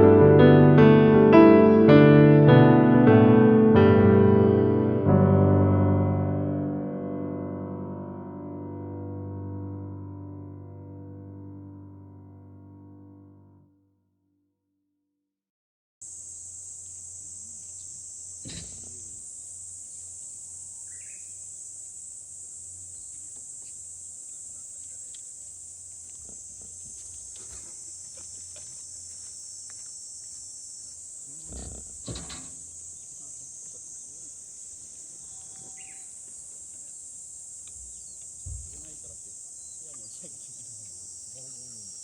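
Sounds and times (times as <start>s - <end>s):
insects chorus: 16.0s - 42.0s.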